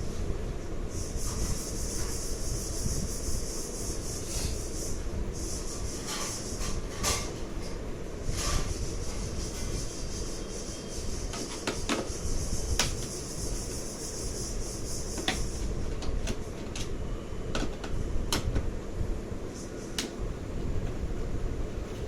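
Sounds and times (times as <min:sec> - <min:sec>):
high hiss: 0:00.9 - 0:06.9, 0:08.2 - 0:15.8.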